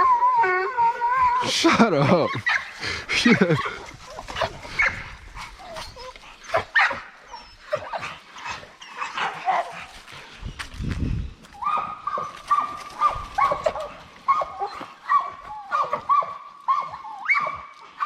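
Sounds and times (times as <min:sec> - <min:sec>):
high-pitched dog whine: 0:00.0 - 0:01.6
dogs barking and yipping: 0:00.0 - 0:10.8, 0:11.4 - 0:18.0.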